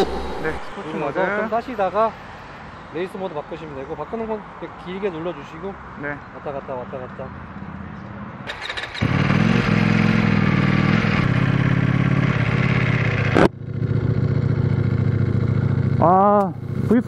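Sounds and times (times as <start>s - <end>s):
motorcycle engine running: 8.6s - 17.0s.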